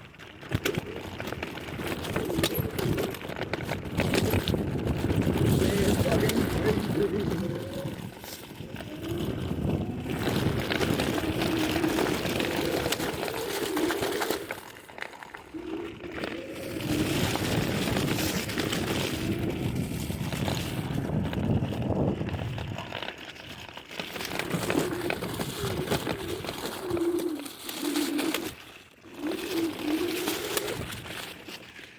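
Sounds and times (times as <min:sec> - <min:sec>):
tyre noise on dirt: 0:00.0 - 0:31.9
electric scooter motor whine: 0:00.5 - 0:31.9
rushing wind: 0:02.0 - 0:14.5, 0:15.6 - 0:23.0.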